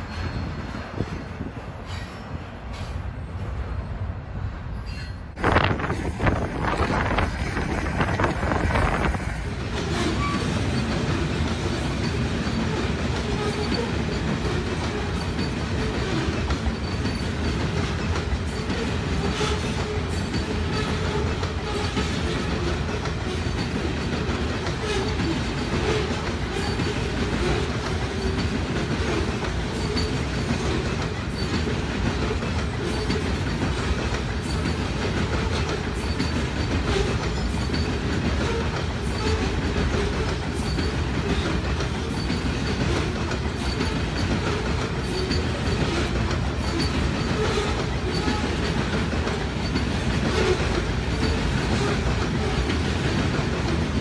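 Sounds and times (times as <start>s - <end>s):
clickety-clack over rail joints: 0.0s - 3.8s, 4.8s - 54.0s
train wheels rumbling on rails: 0.0s - 54.0s
faint high wheel squeaks: 29.7s - 30.3s, 36.0s - 48.6s.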